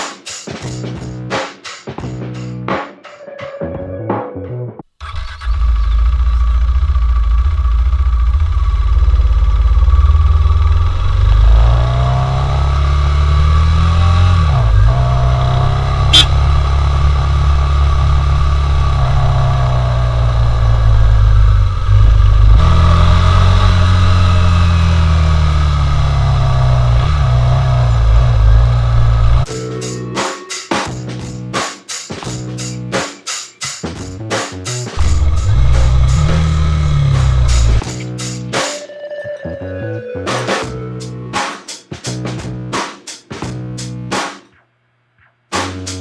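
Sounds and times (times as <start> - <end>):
motorcycle engine revving: 5.0 - 29.5, 34.9 - 38.4
sharp click: 16.1 - 16.3.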